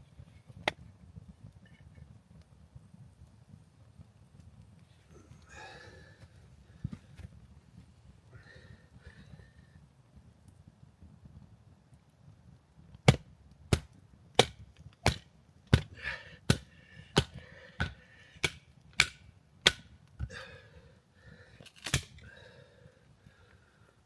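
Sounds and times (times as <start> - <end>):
wood being chopped: 13.0 - 19.9.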